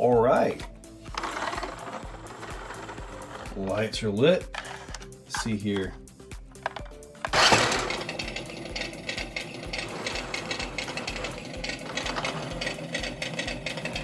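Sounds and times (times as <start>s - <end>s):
toy truck motors whirring: 1.1s - 3.9s, 4.5s - 5.9s, 6.6s - 14.0s.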